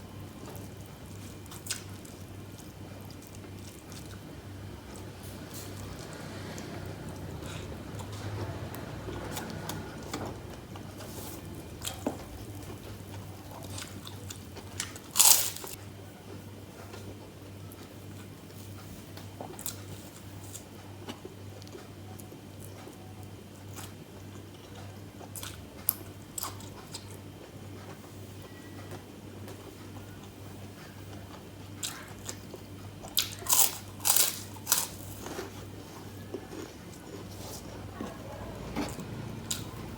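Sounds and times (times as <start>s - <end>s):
person chewing crunchy food: 0.2s - 15.8s, 23.7s - 28.0s, 28.9s - 39.9s.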